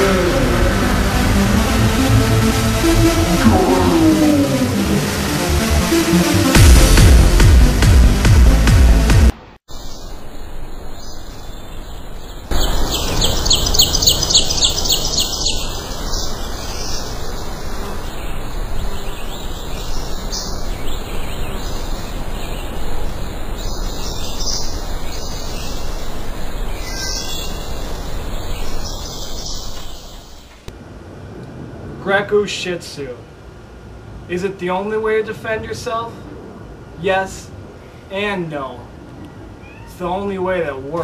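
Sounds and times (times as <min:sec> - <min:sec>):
small birds chirping: 0:09.7 - 0:30.7.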